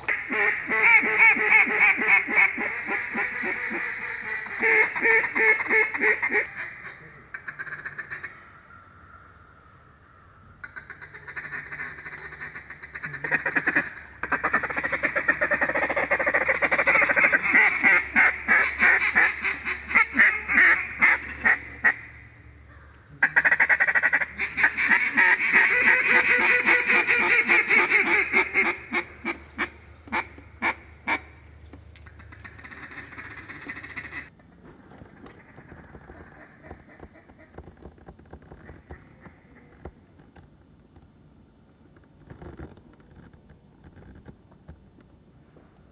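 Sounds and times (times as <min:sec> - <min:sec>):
duck quacking and chattering: 0:00.0 - 0:08.3, 0:10.6 - 0:22.3, 0:23.1 - 0:31.4, 0:32.0 - 0:34.3.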